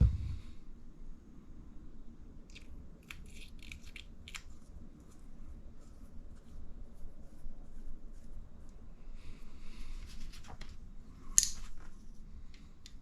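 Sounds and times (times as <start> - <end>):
low room rumble: 0.0 - 13.0.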